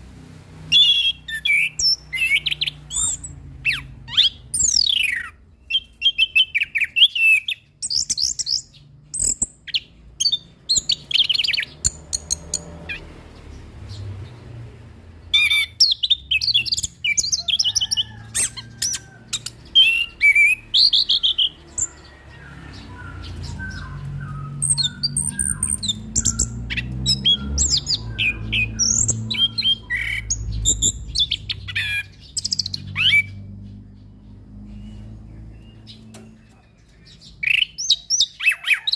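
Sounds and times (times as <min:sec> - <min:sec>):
thrush singing: 0:15.4 - 0:33.9.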